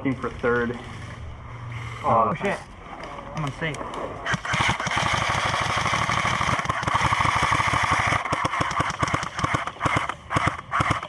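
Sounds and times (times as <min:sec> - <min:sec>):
airsoft rifle full-auto firing: 0:04.3 - 0:11.0.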